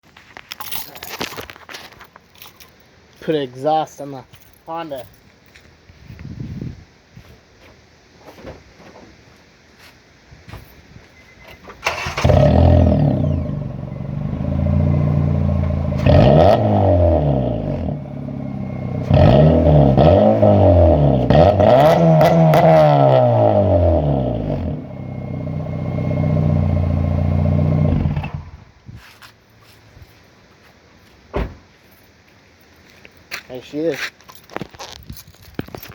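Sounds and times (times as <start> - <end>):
car engine starting and revving: 11.8 - 28.6.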